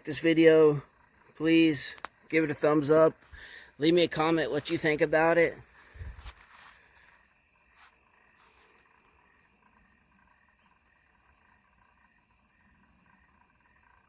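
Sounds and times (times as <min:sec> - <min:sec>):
frogs and insects chorus: 0:00.0 - 0:14.0.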